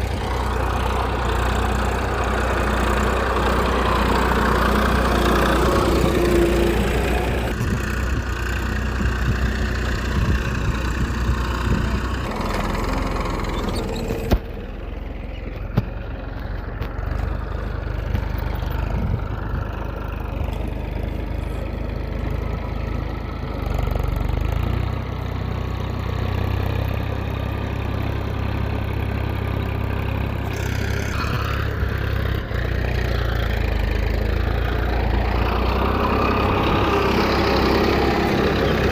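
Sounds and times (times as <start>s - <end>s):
small motor humming: 30.4s - 32.2s.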